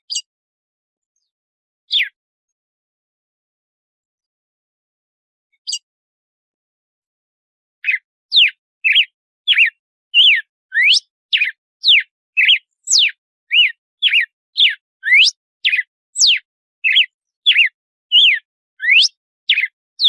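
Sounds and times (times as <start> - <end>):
bird whistling song: 1.9 - 2.2, 5.5 - 5.8, 7.8 - 19.8.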